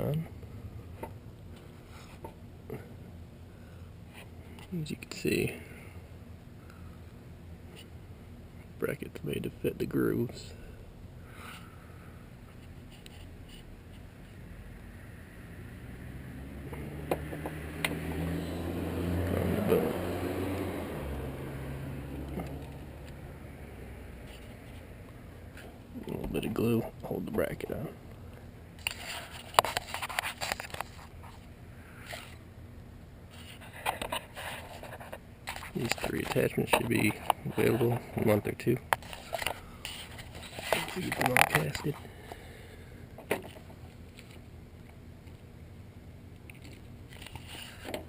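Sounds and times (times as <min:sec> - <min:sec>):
low mechanical hum: 0:00.0 - 0:48.0
soft plastic scrape: 0:39.0 - 0:42.0, 0:46.6 - 0:47.9.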